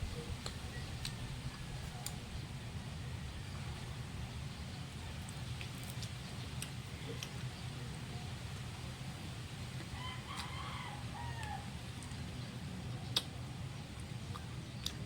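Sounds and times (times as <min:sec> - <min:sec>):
rooster crowing: 0:09.9 - 0:11.8.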